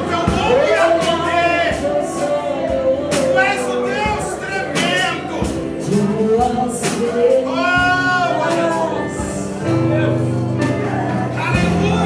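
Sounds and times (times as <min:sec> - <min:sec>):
drum hits: 0:00.0 - 0:09.5
band playing: 0:00.0 - 0:12.0
person singing: 0:00.0 - 0:12.0.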